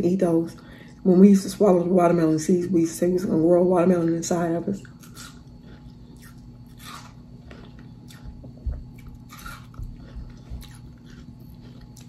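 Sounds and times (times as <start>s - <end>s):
person chewing crunchy watermelon: 4.8s - 12.0s.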